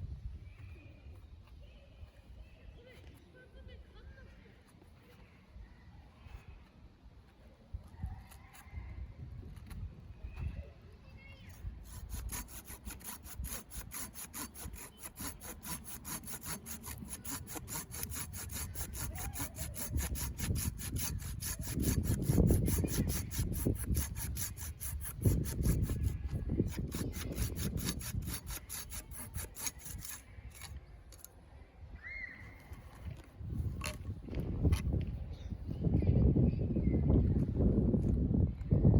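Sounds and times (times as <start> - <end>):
hand saw cutting wood: 11.8 - 31.3.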